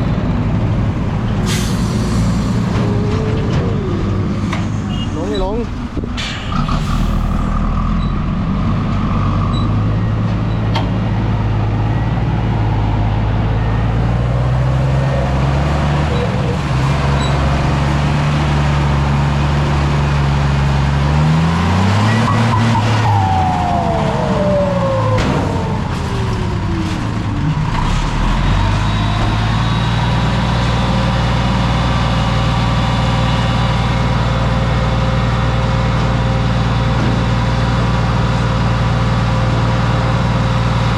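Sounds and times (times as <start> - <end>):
diesel truck engine revving: 0.0 - 40.9
falling whine: 0.8 - 9.2.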